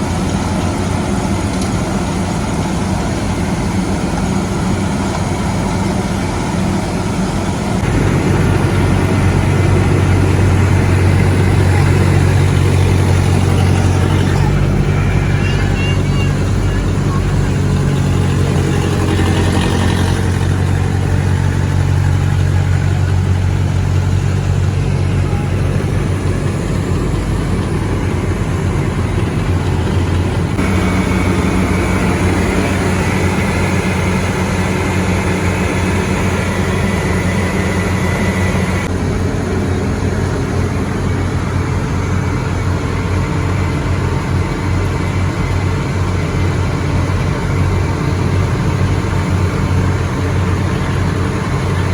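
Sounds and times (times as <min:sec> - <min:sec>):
diesel machinery engines running: 0:00.0 - 0:51.9.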